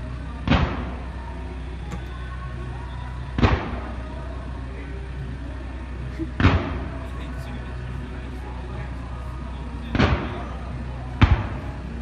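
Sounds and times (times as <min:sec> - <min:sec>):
firework shells booming: 0:06.4 - 0:06.9, 0:11.2 - 0:11.6.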